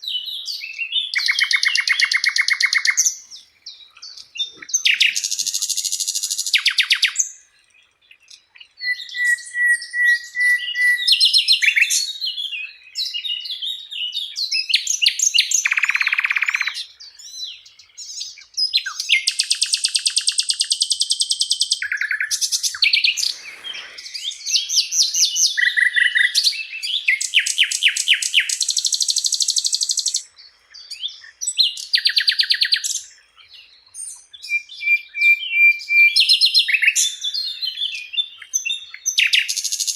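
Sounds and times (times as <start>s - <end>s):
flycatcher singing trills and whistles: 0.0s - 39.9s.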